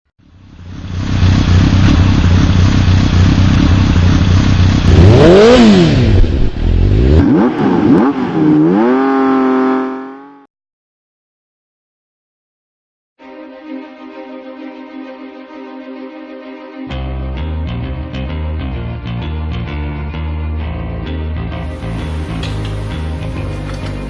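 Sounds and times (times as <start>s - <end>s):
motorcycle engine running hard: 0.2s - 10.4s.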